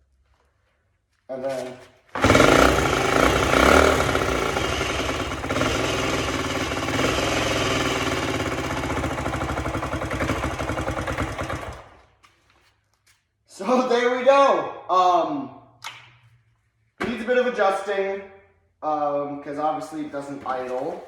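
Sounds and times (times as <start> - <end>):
motorcycle engine running: 2.2 - 12.0.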